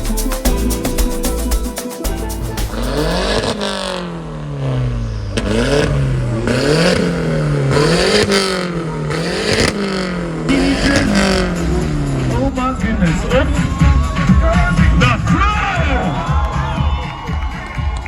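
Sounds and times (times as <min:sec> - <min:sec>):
music: 0:00.0 - 0:03.8, 0:10.8 - 0:18.0
car engine revving hard: 0:02.6 - 0:15.2.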